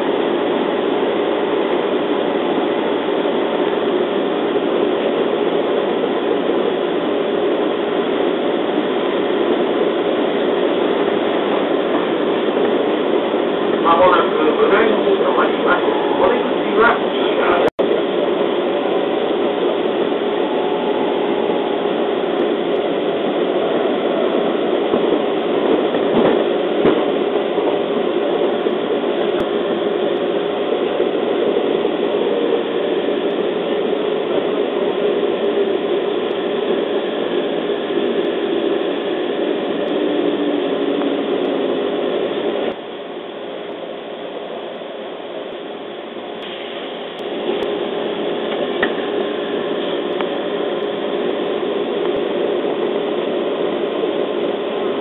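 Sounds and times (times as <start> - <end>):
train wheels rumbling on rail: 0.0 - 42.8, 46.3 - 55.0
train braking tone: 13.9 - 17.7, 18.6 - 25.7.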